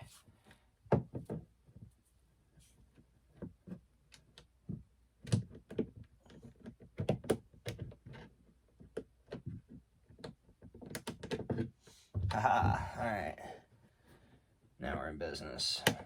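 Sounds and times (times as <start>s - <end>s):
small clicks taps and knocks: 2.9s - 12.3s.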